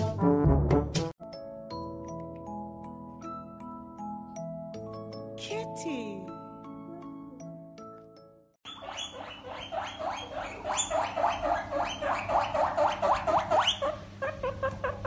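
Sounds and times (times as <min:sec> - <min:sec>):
small animal squeaking: 0:08.6 - 0:15.0.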